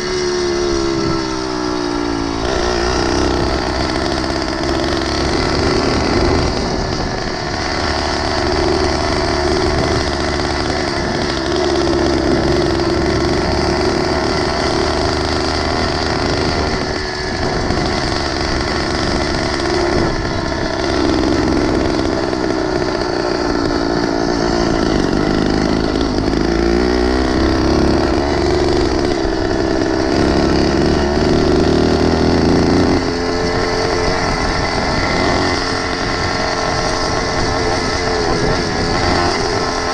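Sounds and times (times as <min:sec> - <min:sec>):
motorized bicycle engine running: 0:00.0 - 0:39.9.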